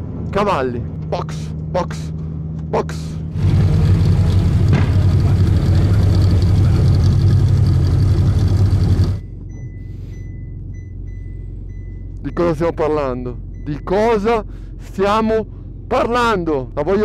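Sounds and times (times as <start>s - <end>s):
car engine running at low revs: 0.0s - 17.0s
faint high beeps: 9.2s - 12.8s.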